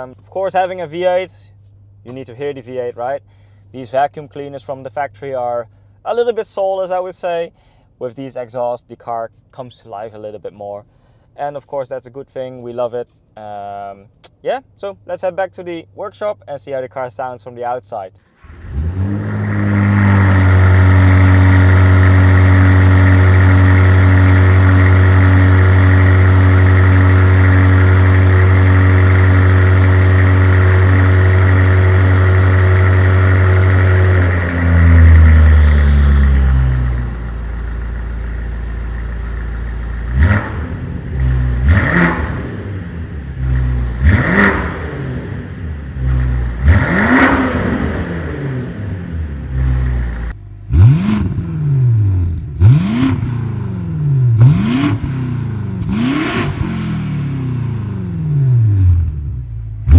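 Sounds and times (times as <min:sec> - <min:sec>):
car engine fast idle: 0:18.4 - 0:50.3
engine throttle blips: 0:18.5 - 0:50.9.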